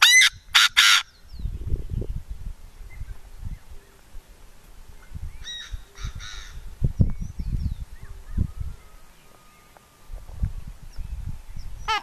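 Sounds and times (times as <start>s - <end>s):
wind thumps on microphone: 1.3s - 3.7s, 5.0s - 8.8s, 10.1s - 12.0s.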